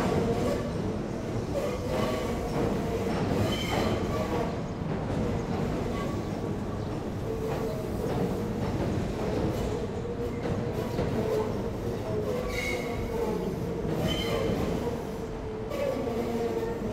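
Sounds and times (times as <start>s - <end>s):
train wheels rumbling on bridge: 0.0s - 16.9s.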